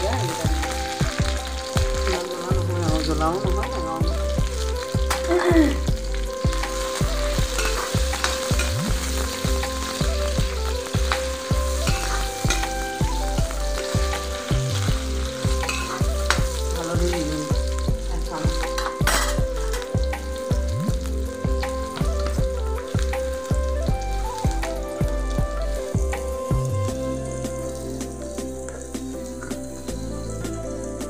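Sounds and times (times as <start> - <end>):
onions sizzling in hot oil: 0.0 - 31.0
ladle scraping metal pan: 15.6 - 16.0.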